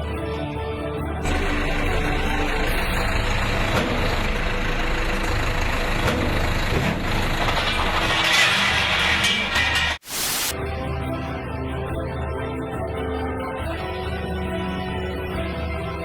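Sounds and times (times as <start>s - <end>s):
heavy truck engine rumble: 1.2s - 10.0s
hiss: 10.0s - 10.5s.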